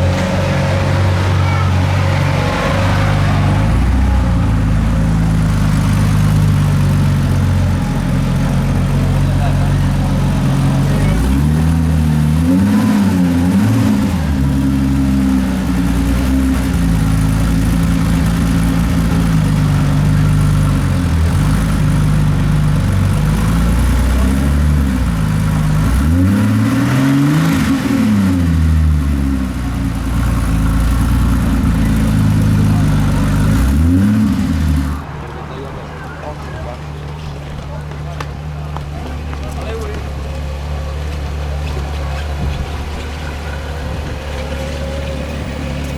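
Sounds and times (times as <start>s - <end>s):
sports car engine idling and revving: 0.0s - 45.9s.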